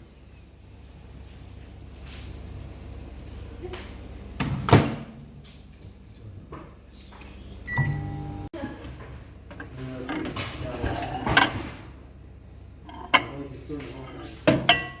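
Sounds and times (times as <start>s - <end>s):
microwave oven humming: 0.0s - 5.6s, 7.4s - 15.0s
brief pitched tone: 7.7s - 8.5s.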